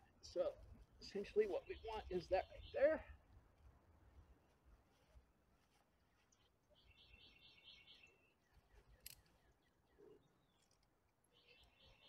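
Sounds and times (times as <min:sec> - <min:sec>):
high bird chirping: 0:01.6 - 0:03.1, 0:06.8 - 0:10.6, 0:11.4 - 0:12.0.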